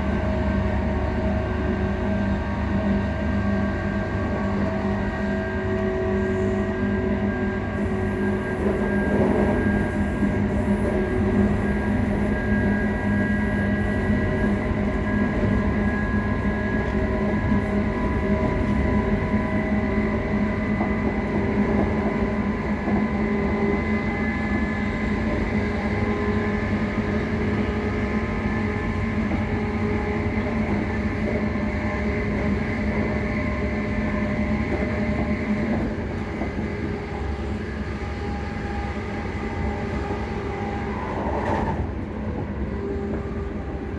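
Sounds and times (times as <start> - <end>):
electric train transformer hum: 0.0 - 43.9
wheel and track rumble: 0.0 - 43.9.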